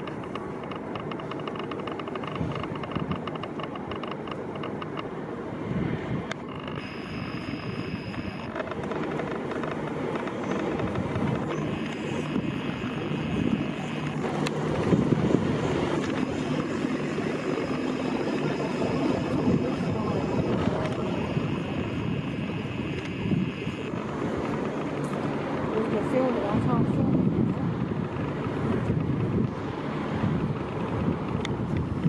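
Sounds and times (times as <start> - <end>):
faint high whine: 0.0 - 31.4.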